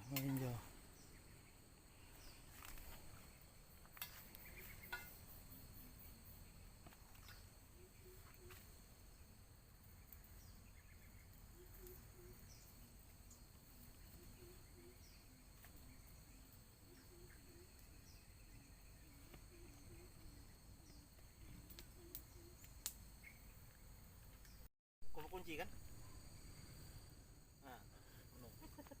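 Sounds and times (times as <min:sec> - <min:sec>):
high-pitched insect drone: 0:10.4 - 0:23.3.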